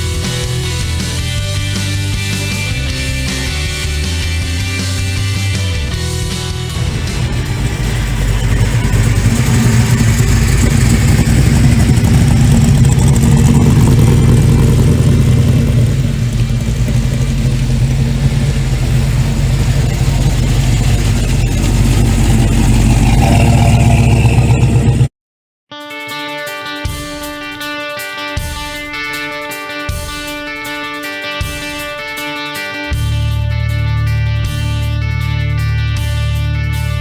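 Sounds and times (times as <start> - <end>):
car engine rumbling: 6.0 - 25.1.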